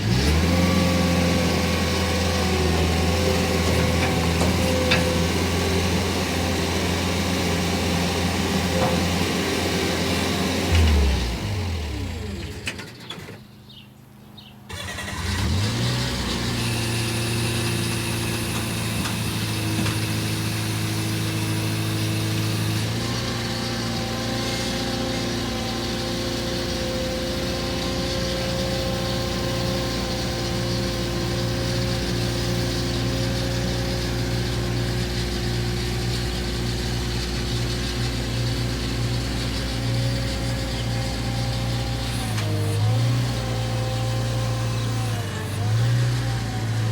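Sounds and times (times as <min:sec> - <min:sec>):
vehicle engine running: 0:13.5 - 0:46.9.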